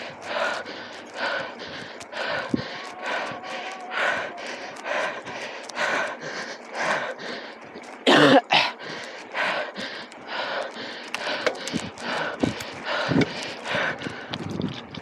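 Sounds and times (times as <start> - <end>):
hard rhythmic breathing: 0.0 - 15.0
person coughing: 8.1 - 8.7.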